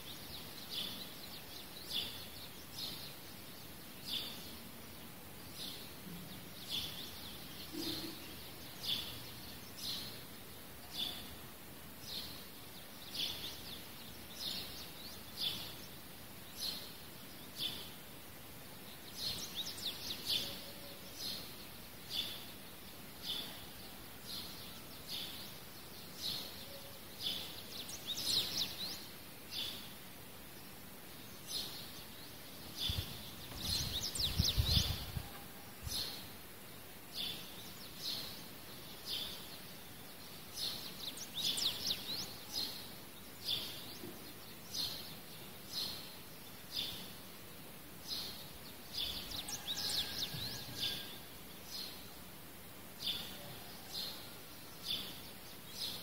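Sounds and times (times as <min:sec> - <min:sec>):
bird chirping: 0:00.0 - 0:18.1, 0:18.7 - 0:36.4, 0:37.1 - 0:47.3, 0:47.9 - 0:52.3, 0:52.9 - 0:56.0
steady faint hiss: 0:00.0 - 0:56.0.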